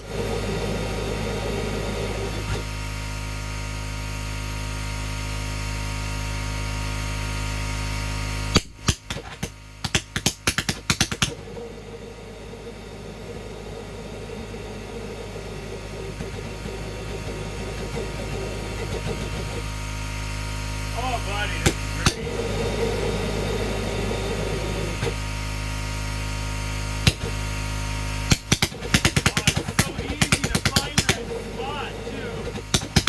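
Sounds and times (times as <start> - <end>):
sharp pops: 8.6 - 11.4, 28.3 - 31.4, 32.4 - 33.0
burner rushing and humming: 20.9 - 25.2, 28.6 - 33.0.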